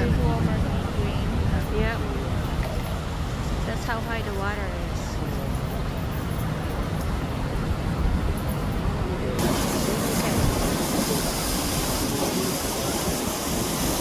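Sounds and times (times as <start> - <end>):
low fluttering rumble: 0.0 - 14.0
bright hiss: 9.4 - 14.0.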